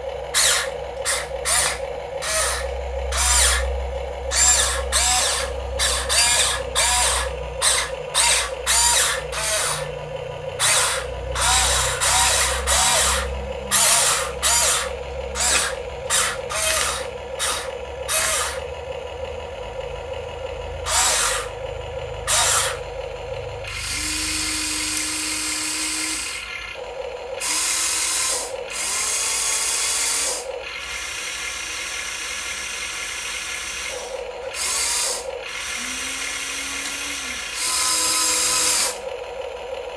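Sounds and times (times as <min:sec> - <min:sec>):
small electric motors whirring: 0:00.0 - 0:19.0, 0:19.8 - 0:39.9.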